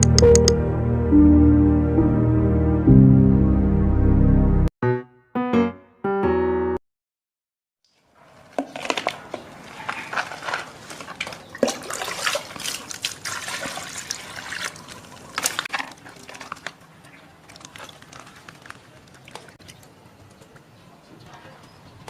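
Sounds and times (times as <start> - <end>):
water splashing and trickling: 7.9 - 20.7.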